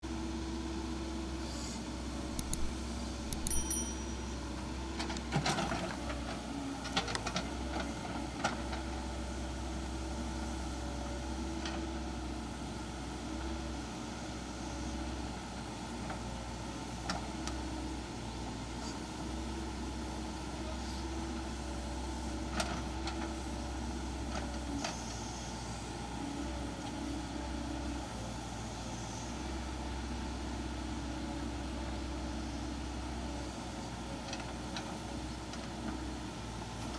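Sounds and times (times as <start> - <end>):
excavator diesel engine running: 0.1 - 36.9
sharp metal clanks and knocks: 3.3 - 4.3.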